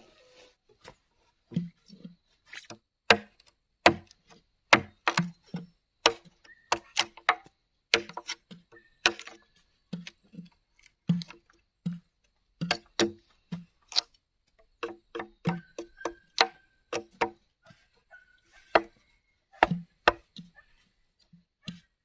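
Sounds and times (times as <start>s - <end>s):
tool knocking on bamboo: 4.7s - 7.4s, 12.6s - 13.7s, 14.8s - 17.4s, 18.7s - 19.0s, 19.6s - 20.6s.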